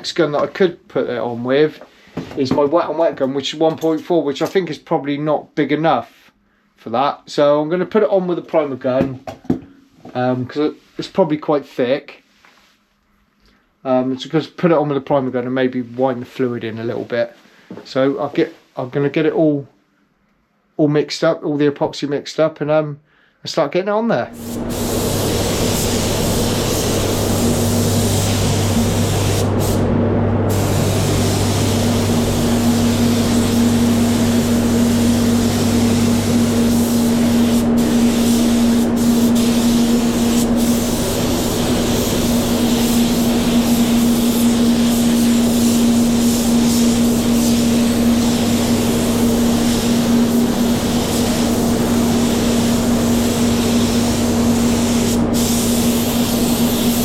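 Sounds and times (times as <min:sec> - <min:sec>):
low hum: 0:24.3 - 0:36.7
spray gun compressed air hiss: 0:24.4 - 0:57.0.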